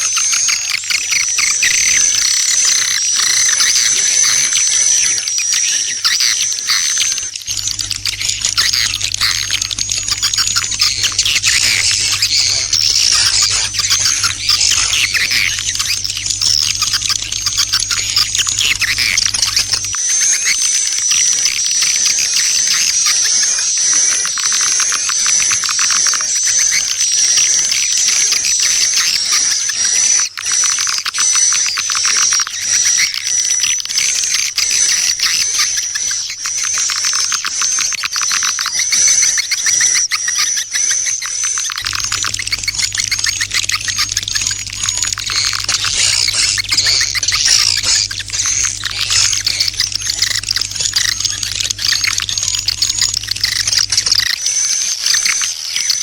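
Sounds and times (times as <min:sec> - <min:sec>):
high-pitched twittering chirps: 0:00.5 - 0:21.7, 0:40.4 - 0:56.0
rapid clicking: 0:07.3 - 0:20.6, 0:41.7 - 0:54.7
steady low hum: 0:07.4 - 0:20.4, 0:41.8 - 0:54.4.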